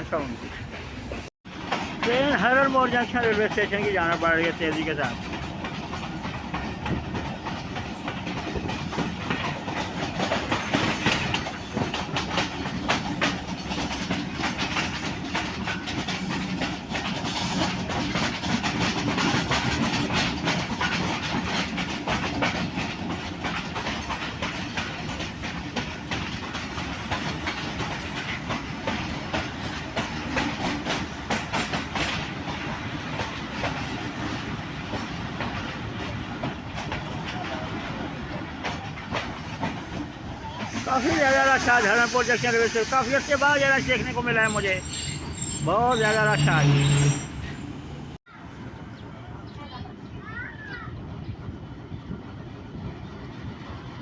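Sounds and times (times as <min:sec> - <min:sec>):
train wheels rumbling and rattling: 0:00.0 - 0:54.0
wheels clicking over rail joints: 0:00.1 - 0:42.0.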